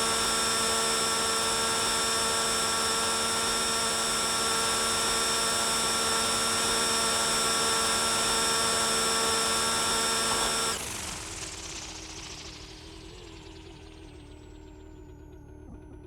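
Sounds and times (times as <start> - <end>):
rc helicopter motor whining: 0.0 - 14.6.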